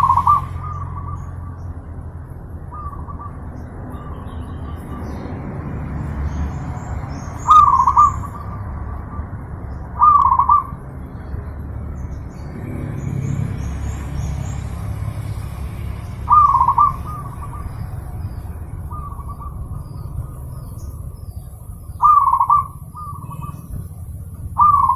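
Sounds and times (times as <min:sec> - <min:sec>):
dove cooing: 0:00.0 - 0:01.5, 0:07.5 - 0:09.4, 0:10.0 - 0:10.8, 0:16.2 - 0:20.7, 0:21.6 - 0:24.9
steady low rumble: 0:00.0 - 0:24.9.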